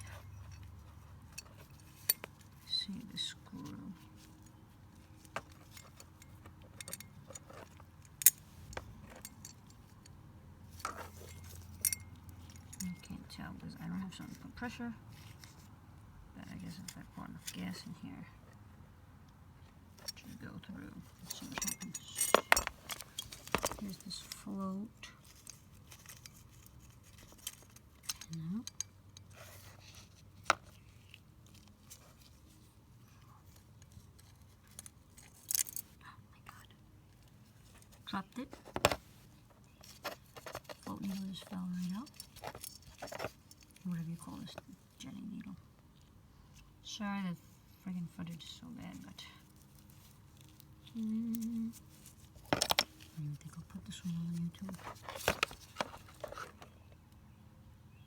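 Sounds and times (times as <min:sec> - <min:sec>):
metallic clicks of small parts: 0:33.8 - 0:35.9.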